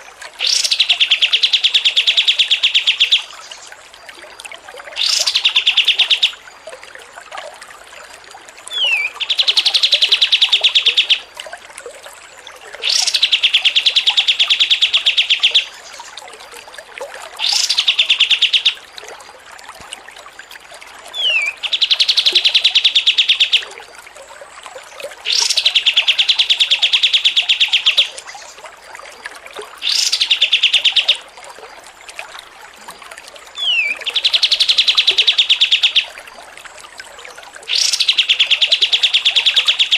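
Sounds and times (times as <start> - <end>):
songbird trilling: 0.4 - 3.4, 5.0 - 6.3, 8.7 - 11.2, 12.8 - 16.0, 17.4 - 18.8, 21.2 - 23.7, 25.3 - 28.5, 29.8 - 31.2, 33.6 - 36.1, 37.7 - 39.9.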